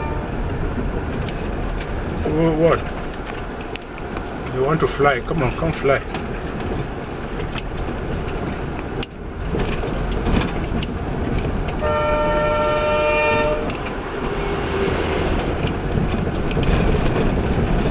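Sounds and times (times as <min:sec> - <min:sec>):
vehicle horn: 0:00.0 - 0:00.5, 0:11.8 - 0:14.8
car driving on rough road: 0:00.0 - 0:17.9.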